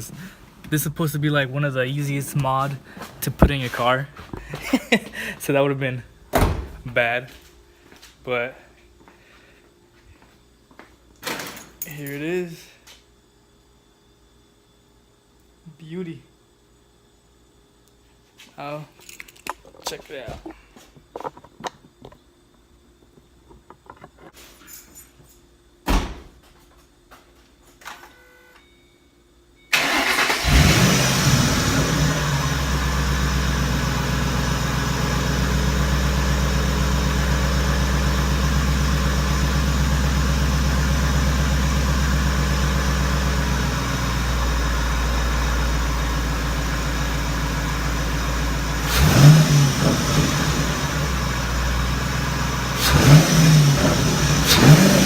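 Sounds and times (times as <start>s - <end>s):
car engine starting and idling: 29.7s - 55.0s
engine revving: 29.8s - 34.6s, 48.8s - 51.4s, 52.6s - 55.0s.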